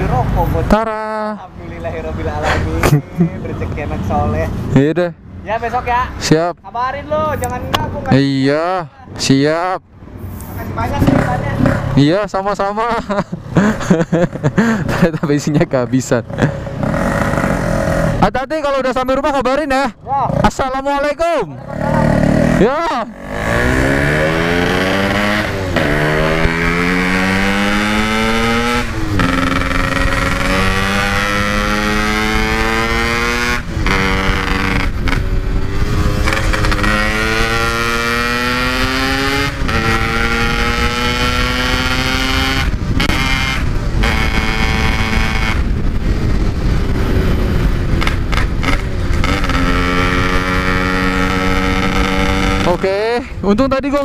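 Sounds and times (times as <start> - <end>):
motorcycle accelerating through gears: 16.3 - 18.2, 21.6 - 53.0.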